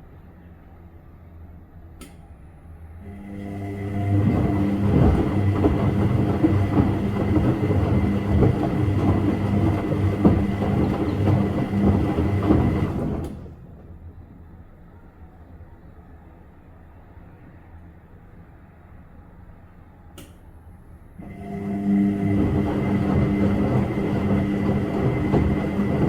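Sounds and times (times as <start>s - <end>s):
washing machine running: 3.0s - 14.2s, 21.2s - 26.0s
drum load knocking and churning: 4.3s - 12.9s.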